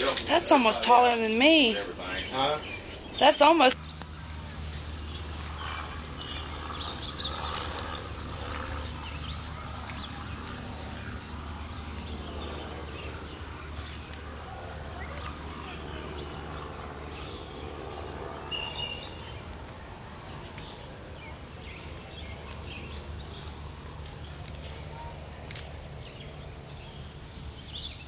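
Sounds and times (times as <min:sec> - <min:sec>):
steady low hum: 0:00.0 - 0:28.0
faint bird calls: 0:05.1 - 0:19.4.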